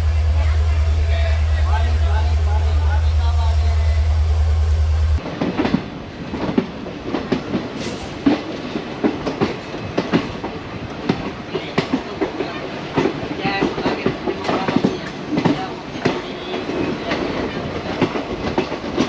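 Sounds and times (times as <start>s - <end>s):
loud low hum: 0.0s - 5.2s
train wheels clattering over rail joints: 5.2s - 19.0s.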